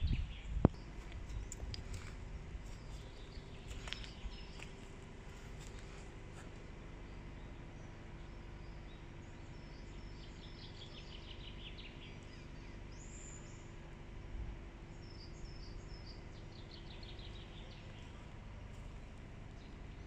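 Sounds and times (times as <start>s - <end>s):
faint songbird chirps: 0.0s - 20.0s
steady low hum: 0.0s - 20.0s.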